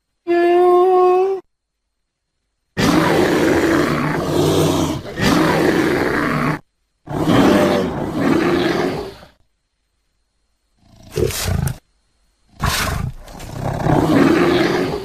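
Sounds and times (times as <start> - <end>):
bear roaring: 2.8 - 9.4, 10.8 - 11.8, 12.6 - 15.0.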